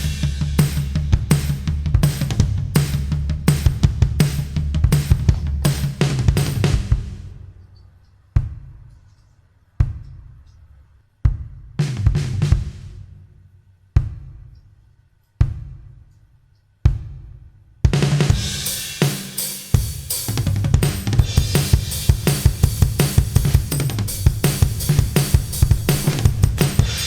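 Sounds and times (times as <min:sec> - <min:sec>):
drum kit solo: 0:00.0 - 0:07.3, 0:11.8 - 0:13.0, 0:17.9 - 0:27.0.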